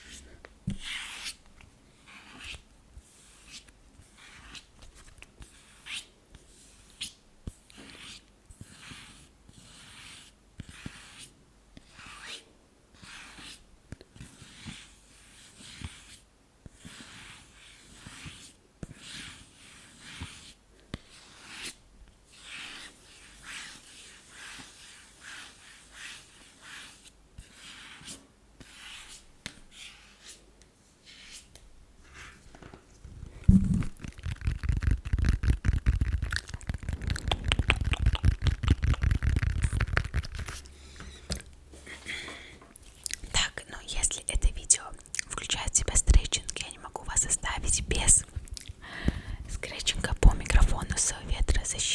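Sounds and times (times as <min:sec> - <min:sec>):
fingernail scratching: 0:33.1 - 0:40.7.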